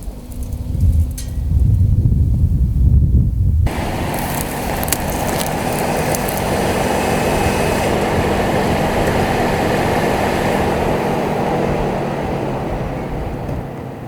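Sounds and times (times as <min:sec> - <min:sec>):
road and tyre noise: 0:03.6 - 0:14.0
car engine running: 0:03.7 - 0:14.0.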